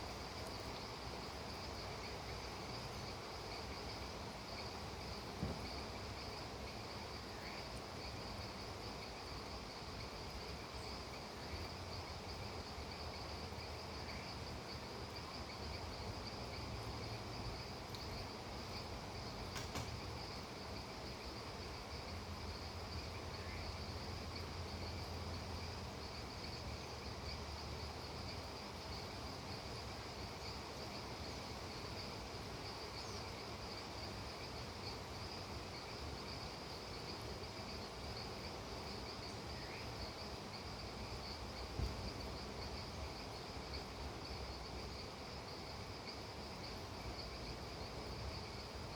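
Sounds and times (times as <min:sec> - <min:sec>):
crickets and insects trilling: 0:00.0 - 0:48.9
steady rain hiss: 0:00.0 - 0:48.9
faint click: 0:19.5 - 0:20.0.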